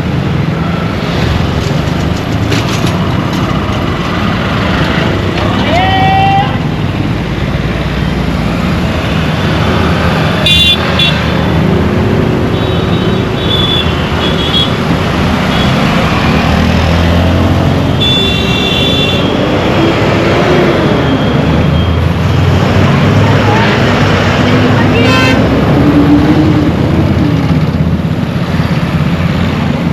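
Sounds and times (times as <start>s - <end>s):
road traffic hum: 0.0s - 29.9s
vehicle horns honking: 10.4s - 11.3s, 12.5s - 14.8s, 18.0s - 19.4s, 25.0s - 25.4s.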